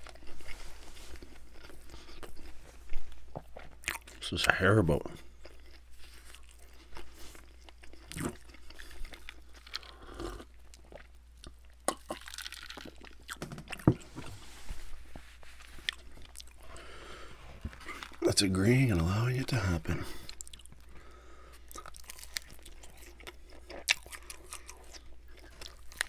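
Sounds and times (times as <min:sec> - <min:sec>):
chewing crust: 0:00.0 - 0:14.1, 0:15.0 - 0:18.2, 0:20.0 - 0:26.0.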